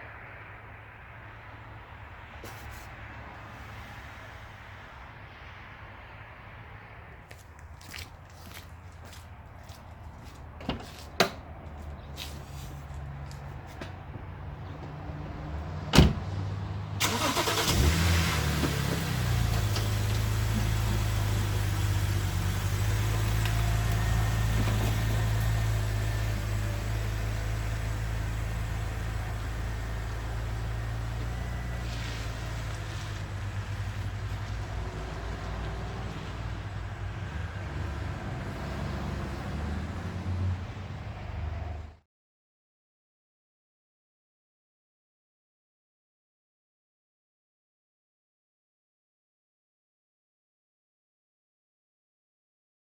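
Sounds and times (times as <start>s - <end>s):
car engine starting and idling: 15.9s - 42.0s.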